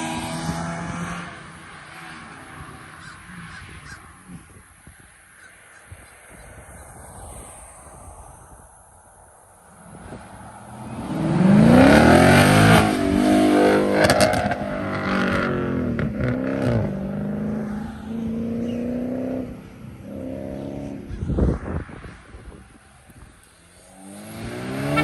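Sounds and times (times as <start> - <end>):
car engine revving: 0.0 - 3.6, 10.5 - 21.2, 23.4 - 25.0.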